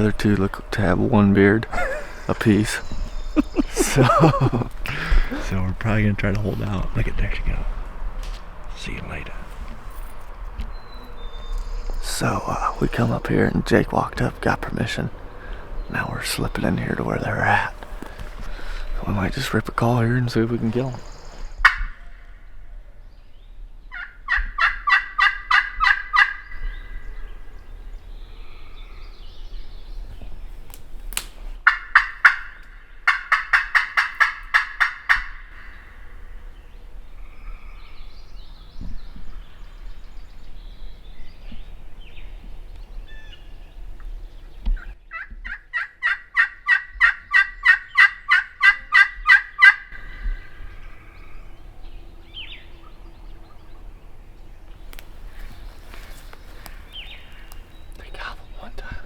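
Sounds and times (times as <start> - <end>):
turkey call yelps: 21.6 - 22.2, 23.9 - 27.0, 31.6 - 36.0, 45.1 - 51.4.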